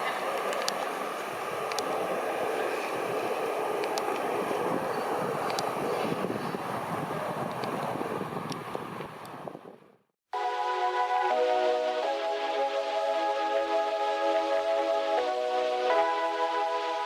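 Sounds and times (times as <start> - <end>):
wheels clicking: 0.0 - 9.6
train rumbling on rails: 0.0 - 10.0.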